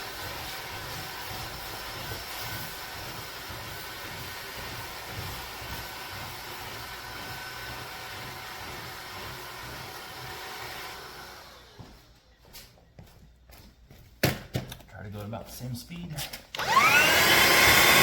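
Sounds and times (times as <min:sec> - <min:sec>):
handheld vacuum whining: 0:00.0 - 0:12.2, 0:16.5 - 0:18.0.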